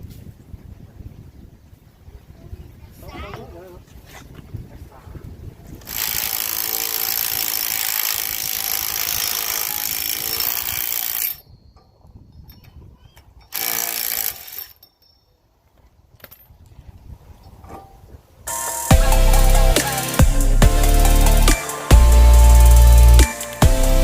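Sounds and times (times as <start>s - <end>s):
impact wrench running: 5.8s - 11.4s, 13.5s - 14.8s, 18.9s - 24.0s.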